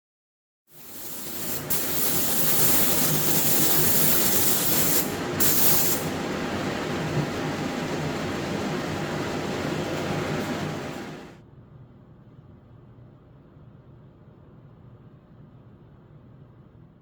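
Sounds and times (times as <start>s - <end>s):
spray paint hiss: 0.7s - 6.2s
steady low background hum: 0.9s - 17.0s.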